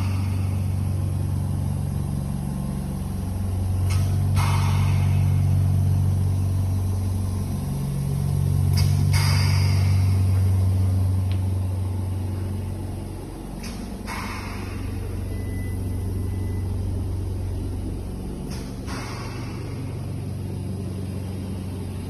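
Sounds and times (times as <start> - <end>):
compressor hum: 0.0 - 22.0
click: 3.8 - 4.8
short hiss of released air: 3.9 - 5.4, 8.8 - 10.3, 13.6 - 15.0, 18.5 - 20.0.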